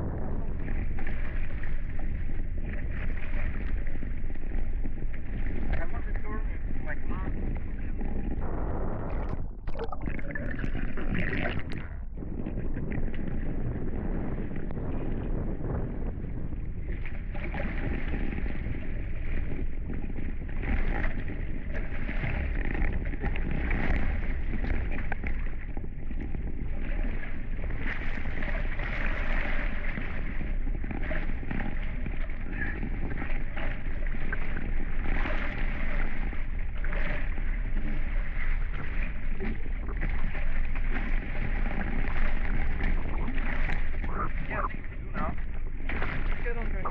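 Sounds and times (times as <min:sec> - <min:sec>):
wind buffeting microphone: 0:00.0 - 0:34.7
water rushing along hulls: 0:00.0 - 0:46.9.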